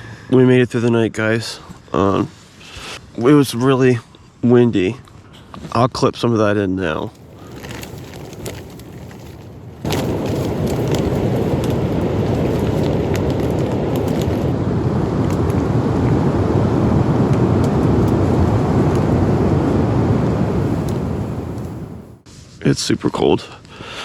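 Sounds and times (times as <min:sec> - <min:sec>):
strong wind on microphone: 0:07.1 - 0:22.2.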